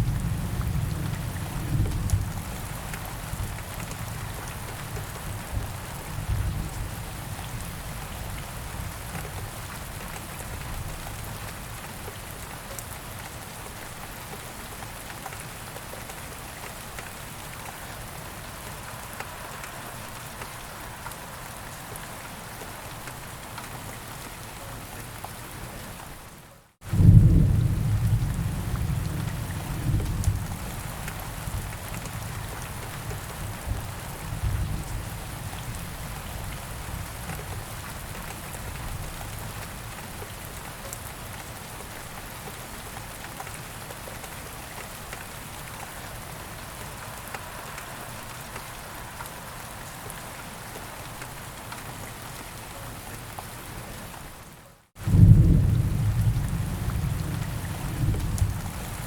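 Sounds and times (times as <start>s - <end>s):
steady rain: 0.0s - 59.0s
thunder rumbling: 26.9s - 36.0s, 55.0s - 59.0s.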